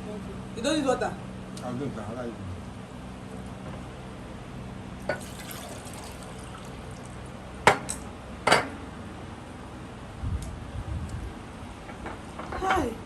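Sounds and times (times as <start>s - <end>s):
water poured into a glass: 5.1s - 7.5s.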